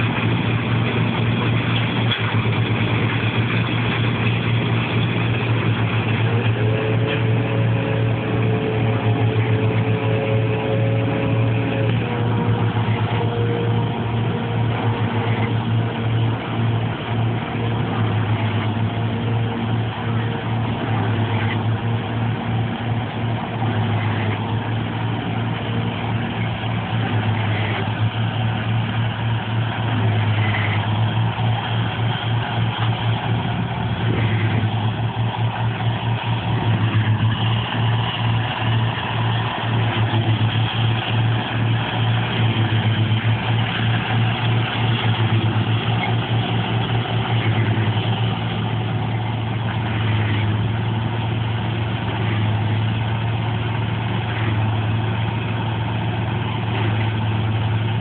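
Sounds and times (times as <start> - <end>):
machine engine running under load: 0.0 - 58.0.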